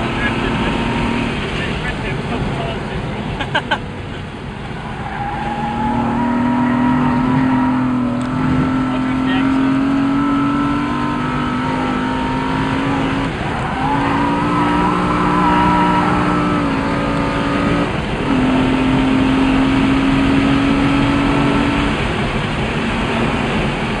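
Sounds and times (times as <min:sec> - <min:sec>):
car engine running hard: 0:00.0 - 0:24.0.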